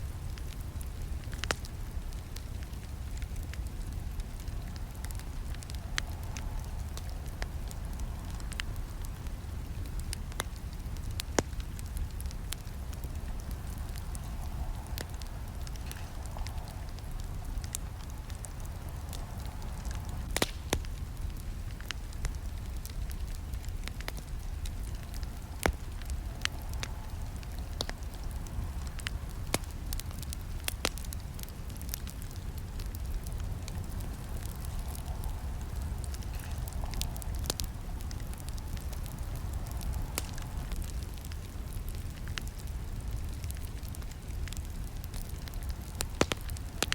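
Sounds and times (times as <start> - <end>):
wood campfire crackling: 0.0 - 46.9.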